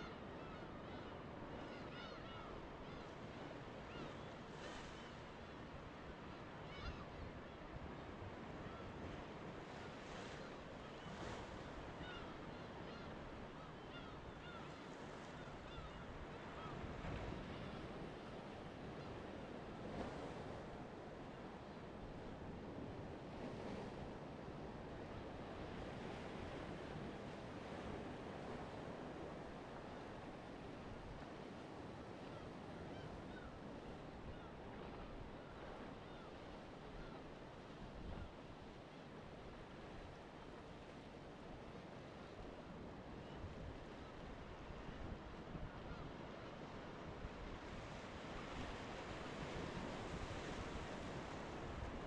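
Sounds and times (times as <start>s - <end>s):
surf washing on shore: 39.3s - 52.0s.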